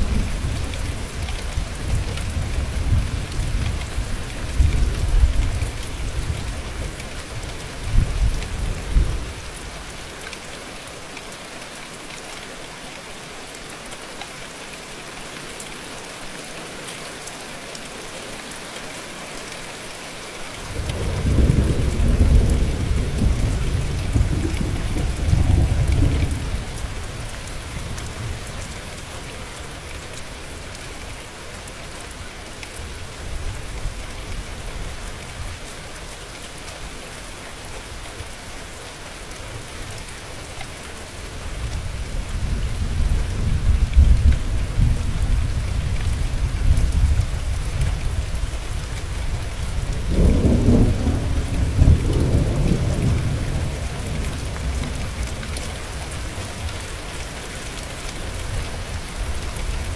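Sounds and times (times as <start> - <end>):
steady rain: 0.0 - 59.9
rolling thunder: 20.7 - 28.5, 49.1 - 56.6.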